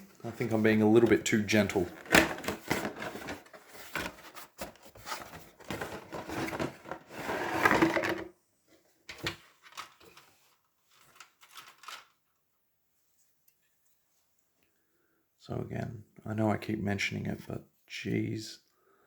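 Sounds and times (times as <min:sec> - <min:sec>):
plastic contents clicking: 0:11.1 - 0:12.2.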